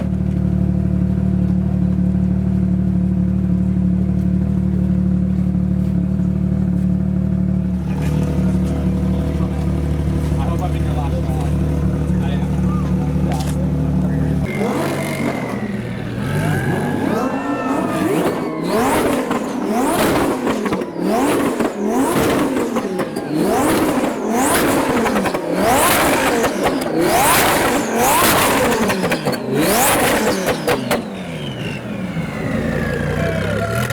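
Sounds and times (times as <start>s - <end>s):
car engine revving: 0.0s - 33.9s
exhaust pops and bangs: 7.5s - 16.5s, 18.1s - 32.0s.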